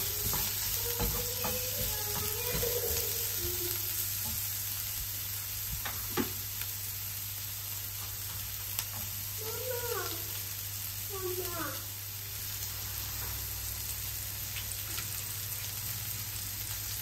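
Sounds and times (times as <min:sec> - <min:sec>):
wooden spatula knocking pan: 0:00.0 - 0:03.2
vegetables sizzling in a frying pan: 0:00.0 - 0:17.0.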